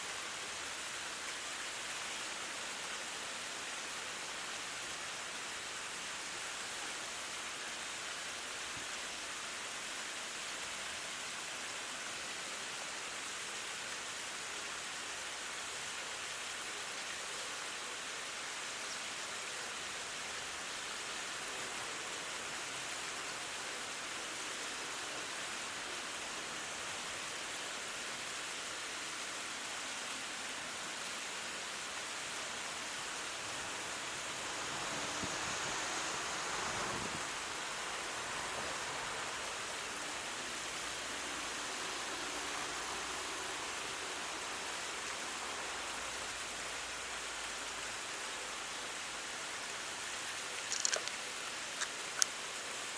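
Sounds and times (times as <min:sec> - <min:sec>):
flowing water rushing: 0:00.0 - 0:52.9.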